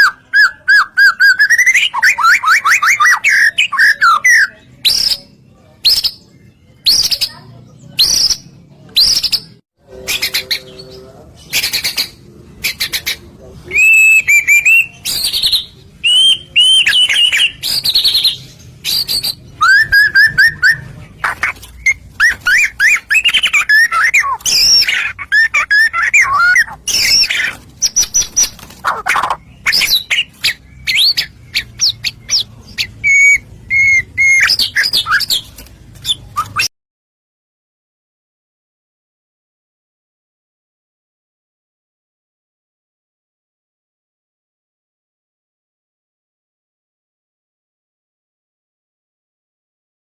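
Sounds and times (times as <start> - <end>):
shama singing whistles and trills: 0.0 - 6.2, 13.6 - 36.7.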